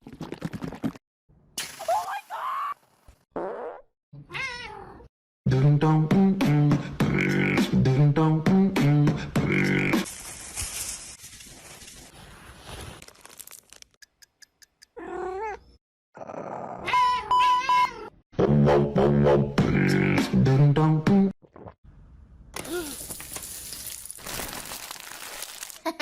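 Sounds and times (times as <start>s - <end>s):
cat-like meows and cries: 4.2s - 5.1s.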